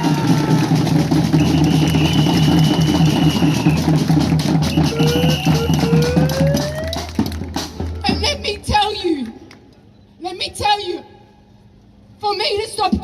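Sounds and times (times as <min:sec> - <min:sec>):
drums beating fast: 0:00.0 - 0:08.8.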